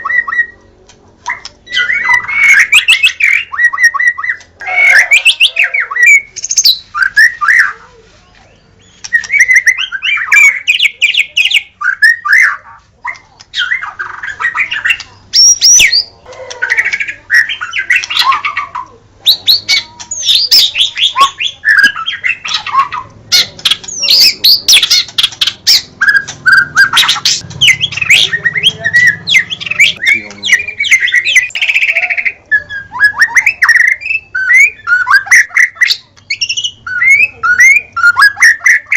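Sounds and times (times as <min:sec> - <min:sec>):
bird singing whistled phrases: 0:01.3 - 0:07.8, 0:08.5 - 0:12.6, 0:19.3 - 0:38.9.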